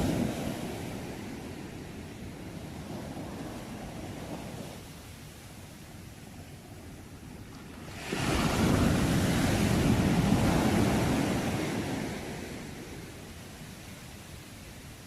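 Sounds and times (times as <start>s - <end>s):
sea wave breaking on shore: 7.7s - 13.1s.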